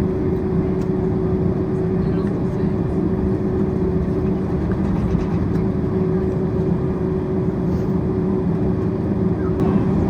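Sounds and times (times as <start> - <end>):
airplane engines idling: 0.0 - 10.0.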